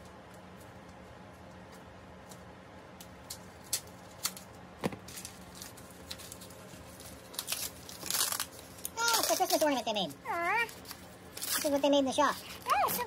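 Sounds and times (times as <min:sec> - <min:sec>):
wrapping crinkling and rustling: 0:00.0 - 0:13.0
wrapping snipped and torn: 0:05.1 - 0:11.9.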